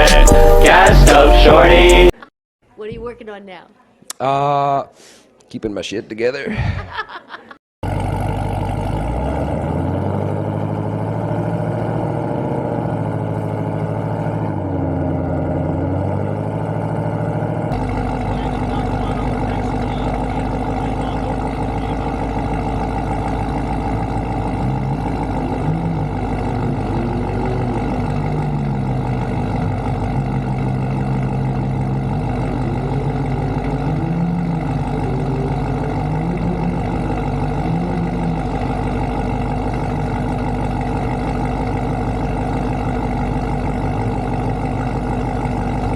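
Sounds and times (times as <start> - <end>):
race car engine idling: 7.8 - 9.4, 13.3 - 45.9
engine revving: 7.8 - 45.9.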